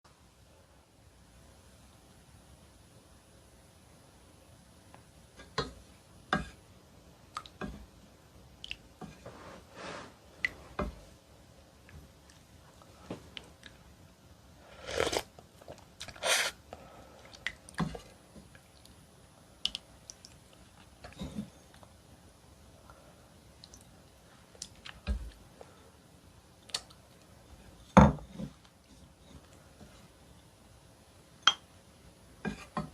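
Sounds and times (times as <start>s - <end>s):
loud noisy slurping sounds: 14.7s - 15.3s, 16.0s - 16.6s
wet chewing and mouth sounds: 14.8s - 16.6s.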